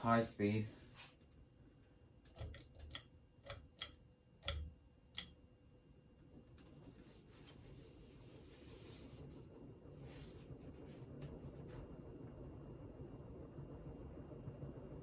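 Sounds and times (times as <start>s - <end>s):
ceiling fan running: 0.0s - 15.0s
light irregular clicks: 1.3s - 5.4s.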